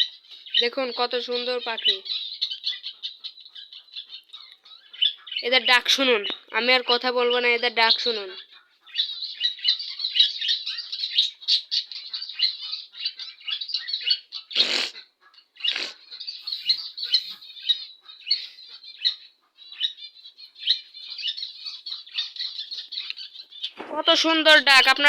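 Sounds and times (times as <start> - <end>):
budgerigars chirping and warbling: 0.0 - 25.0
harsh bird bursts: 14.6 - 15.0, 15.6 - 16.0.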